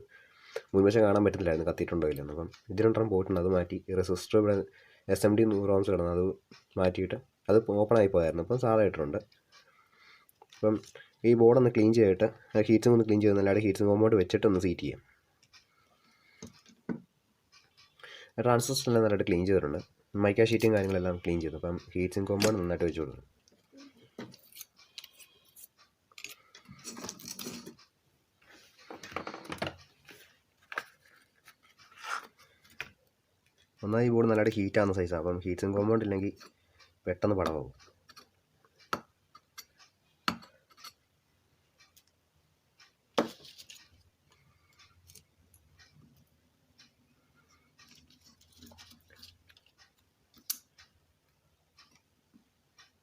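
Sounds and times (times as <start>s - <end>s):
small tools clicking and tapping: 23.5s - 27.9s, 37.4s - 41.0s, 43.2s - 46.0s, 47.8s - 50.9s.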